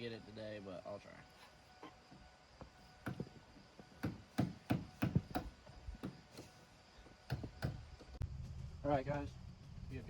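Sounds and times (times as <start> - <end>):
sharp hammer-like knocks: 4.0 - 6.2.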